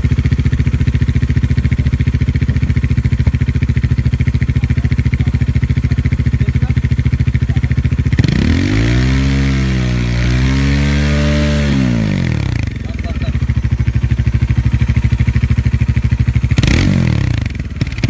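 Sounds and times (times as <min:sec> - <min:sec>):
motorcycle engine idling and revving: 0:00.0 - 0:18.0.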